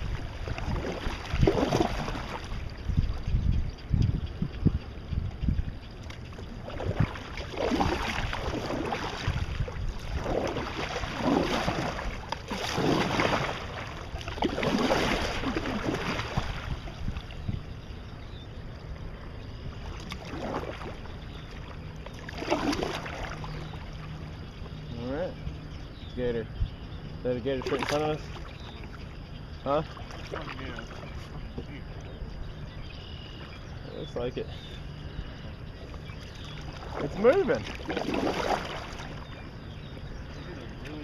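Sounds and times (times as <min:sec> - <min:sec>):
paddle splashing in water: 0:00.0 - 0:03.3, 0:06.0 - 0:17.7, 0:19.7 - 0:24.8, 0:27.5 - 0:32.3, 0:35.7 - 0:41.0
wind rumble on microphone: 0:00.0 - 0:41.0.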